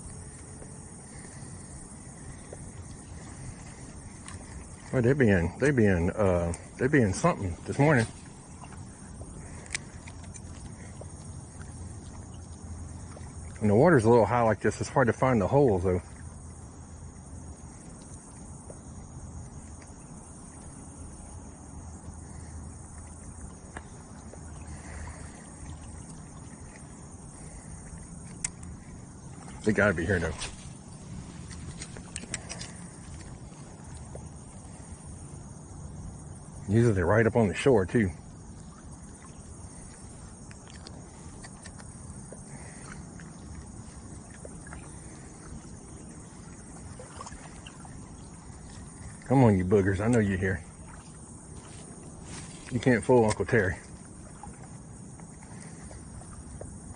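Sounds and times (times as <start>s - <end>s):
insects trilling: 0.0s - 56.9s
faint scattered clicks: 2.2s - 13.7s, 22.1s - 34.9s, 39.0s - 46.8s.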